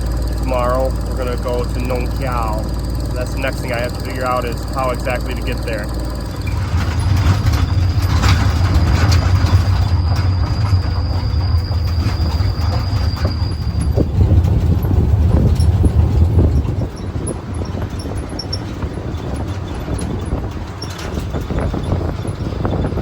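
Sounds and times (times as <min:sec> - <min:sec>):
faint thin whine: 0:00.0 - 0:15.7
boat engine rumbling: 0:00.0 - 0:23.0.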